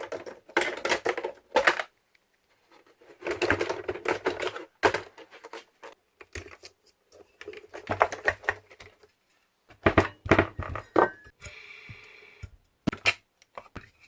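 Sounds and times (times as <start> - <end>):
plastic parts clicking and knocking: 0.0 - 9.1, 9.7 - 11.4.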